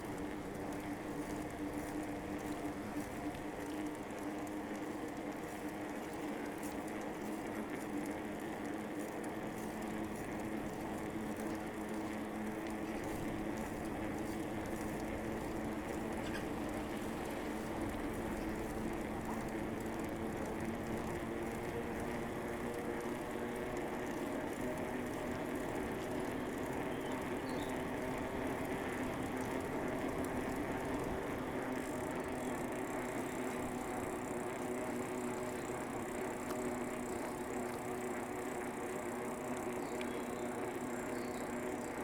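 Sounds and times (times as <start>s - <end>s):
bicycle rolling on pavement: 0.0s - 42.0s.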